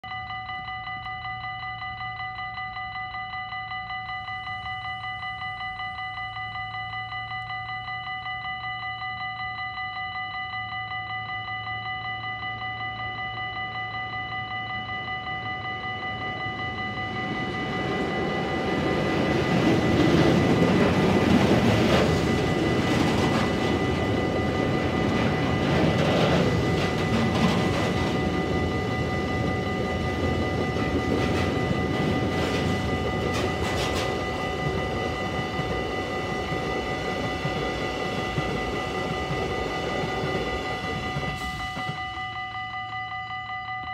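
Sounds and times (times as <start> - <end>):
high ringing tone: 0.0 - 43.9
electric locomotive passing: 0.1 - 43.9
wheels clicking over rail joints: 16.2 - 42.0.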